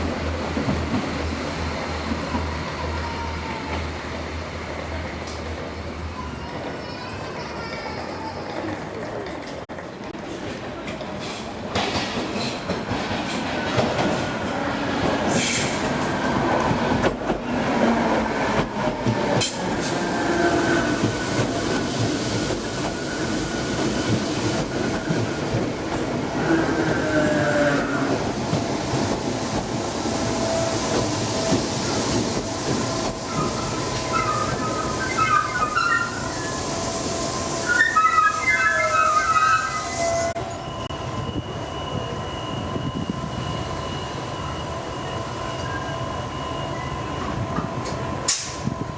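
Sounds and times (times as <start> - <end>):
train running on rails: 0.0 - 48.9
train wheels squealing: 32.8 - 48.8.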